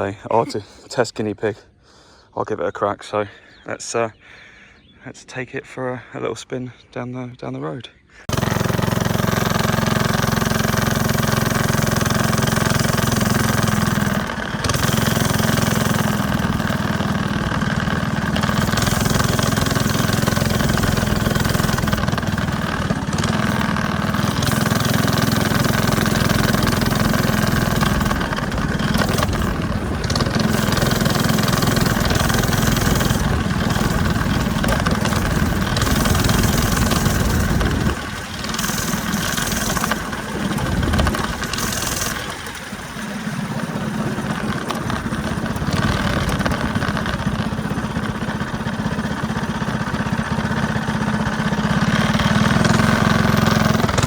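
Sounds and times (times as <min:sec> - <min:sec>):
go kart engine running loud: 0:08.3 - 0:54.0.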